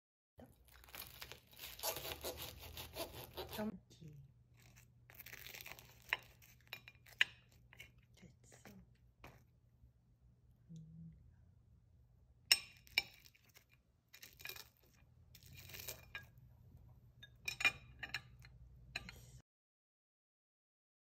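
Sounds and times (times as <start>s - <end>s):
low steady hum: 3.2s - 19.4s.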